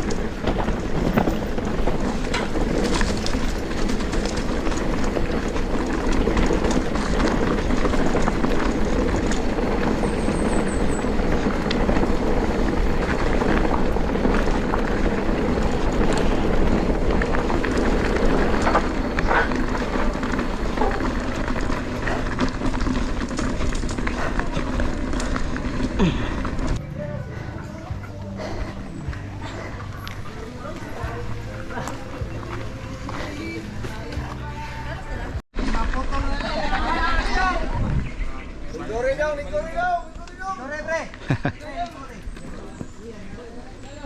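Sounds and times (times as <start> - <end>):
wind buffeting microphone: 0.0 - 26.8, 37.0 - 40.2
bike rattling: 0.0 - 44.0
bike tyres rumbling on dirt: 0.0 - 44.0.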